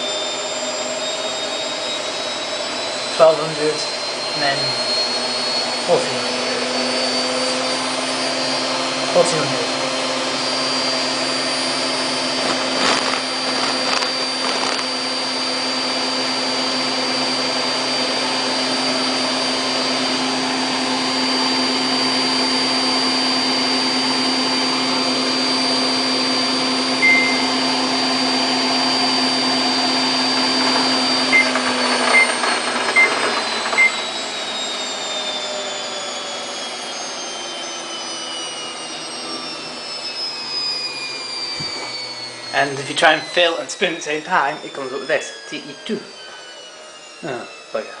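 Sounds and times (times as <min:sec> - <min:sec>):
washing machine motor whine: 0:00.0 - 0:48.0
short beeps: 0:27.0 - 0:27.6, 0:31.4 - 0:32.3.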